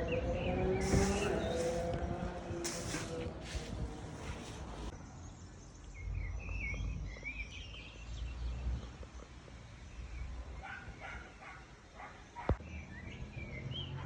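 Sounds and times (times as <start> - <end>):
small birds chirping: 0.0 - 2.4, 3.6 - 14.0
hiss: 0.8 - 1.8, 2.6 - 3.6.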